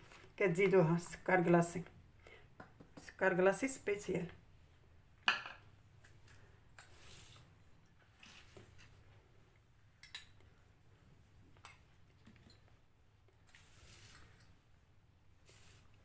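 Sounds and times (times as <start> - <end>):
cookies rustling in sugar: 5.9 - 9.4, 13.3 - 16.0.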